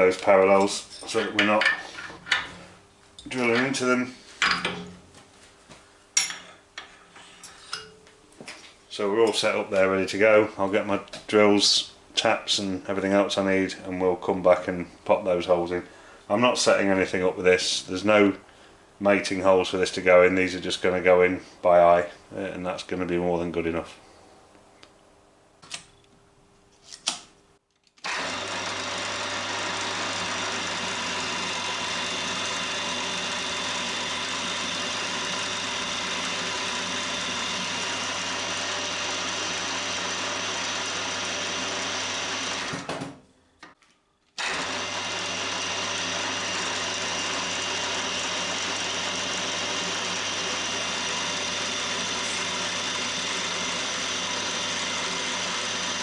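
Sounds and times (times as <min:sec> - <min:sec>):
milling machine spindle motor: 0:28.0 - 0:42.9, 0:44.4 - 0:56.0.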